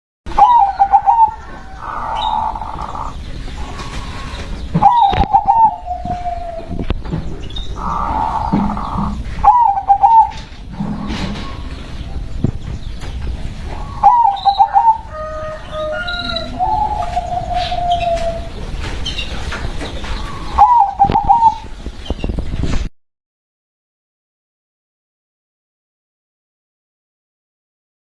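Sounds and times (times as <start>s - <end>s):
dove cooing: 0.3s - 12.0s, 13.6s - 21.8s.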